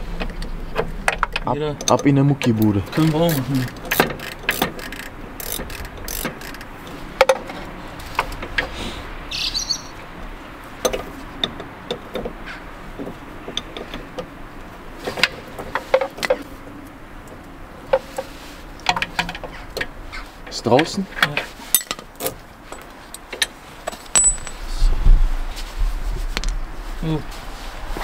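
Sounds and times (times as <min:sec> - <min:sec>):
metallic clicks of hand tools: 0:01.2 - 0:06.6.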